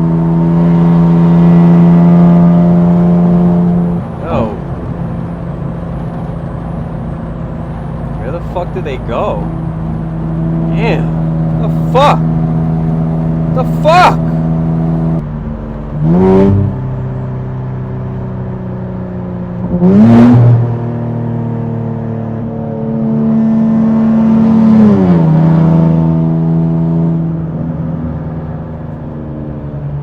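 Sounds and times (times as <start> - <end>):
car engine revving: 0.3 - 17.1.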